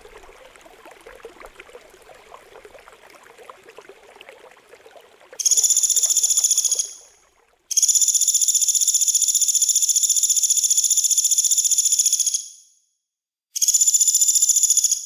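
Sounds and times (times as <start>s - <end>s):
faint trickling water: 0.0s - 8.1s.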